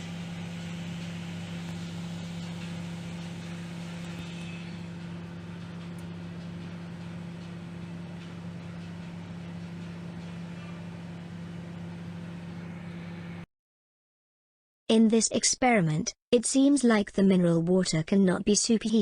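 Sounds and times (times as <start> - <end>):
microwave fan noise: 0.0 - 13.5
microwave oven humming: 0.0 - 13.5.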